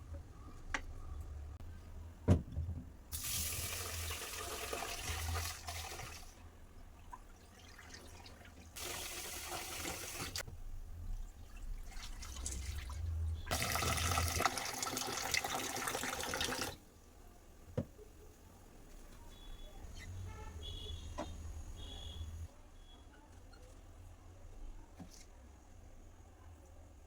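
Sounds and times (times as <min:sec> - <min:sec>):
tap water running into sink: 0:08.8 - 0:10.5, 0:12.0 - 0:16.8.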